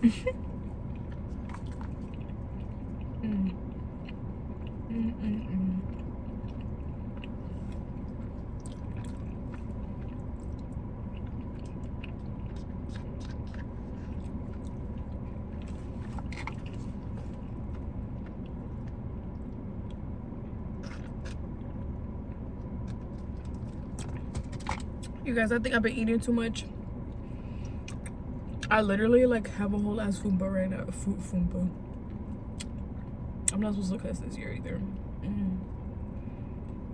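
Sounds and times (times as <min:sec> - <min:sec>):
low hum: 0:00.0 - 0:36.9
person chewing food: 0:00.4 - 0:04.9, 0:05.8 - 0:20.0, 0:20.8 - 0:25.2.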